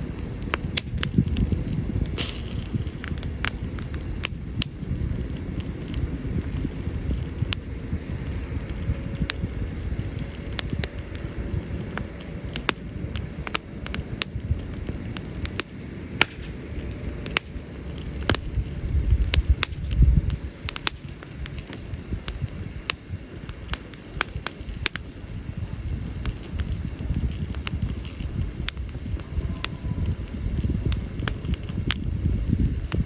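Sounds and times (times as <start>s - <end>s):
campfire crackling and popping: 0.0s - 33.0s
low fire rumble: 0.0s - 33.0s.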